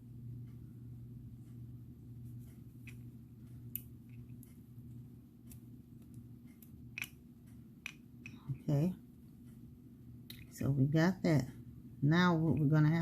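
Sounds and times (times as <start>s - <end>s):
steady low hum: 0.0s - 13.0s
beads clicking and tapping: 5.4s - 8.7s.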